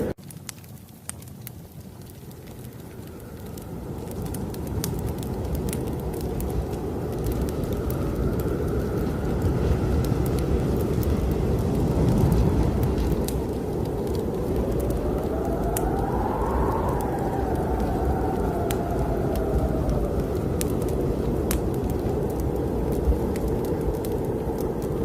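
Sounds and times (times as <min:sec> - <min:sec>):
wood fire crackling: 0:00.0 - 0:25.0
strong wind rushing: 0:03.2 - 0:25.0.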